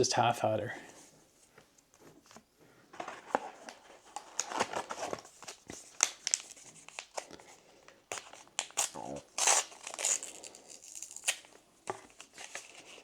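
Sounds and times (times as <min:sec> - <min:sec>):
foil wrapper crinkling and tearing: 0:04.1 - 0:07.5, 0:08.1 - 0:13.0.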